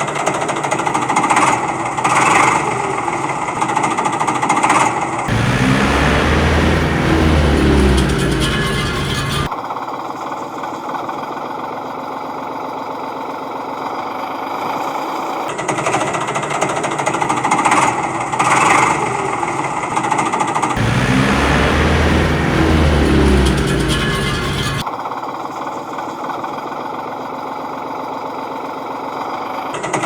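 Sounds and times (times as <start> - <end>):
rapid mechanical rattling: 0.0 - 9.5, 20.0 - 24.8
deep steady hum: 5.3 - 9.5, 20.8 - 24.8.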